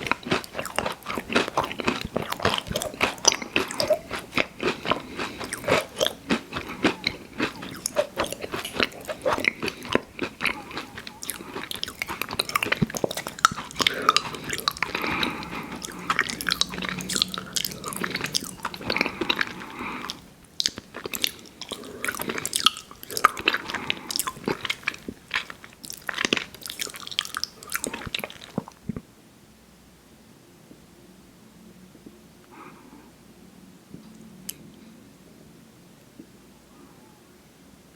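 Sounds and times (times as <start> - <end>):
biting and chewing crunches: 0.0 - 28.8.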